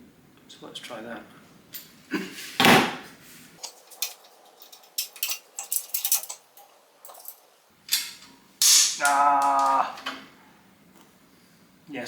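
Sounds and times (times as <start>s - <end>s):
small metal parts clinking: 3.6s - 10.3s.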